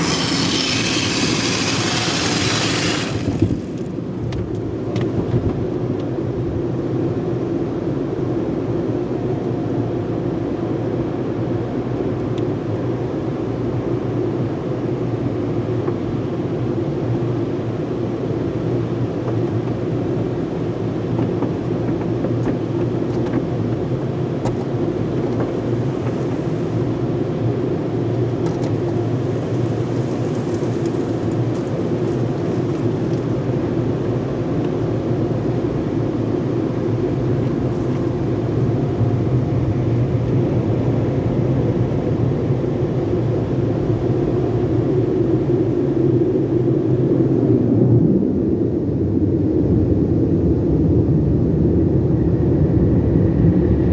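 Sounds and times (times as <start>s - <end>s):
car wash equipment rumbling: 0.0s - 14.4s, 17.6s - 53.9s.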